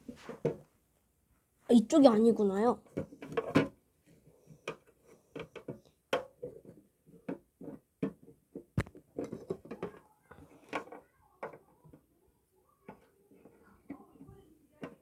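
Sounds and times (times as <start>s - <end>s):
plastic parts clicking and rattling: 4.5s - 12.1s.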